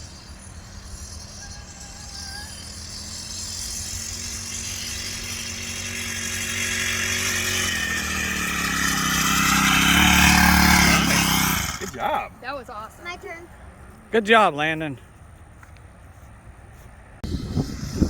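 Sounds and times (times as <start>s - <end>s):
mini bike engine running: 0.0s - 13.4s, 17.2s - 18.0s.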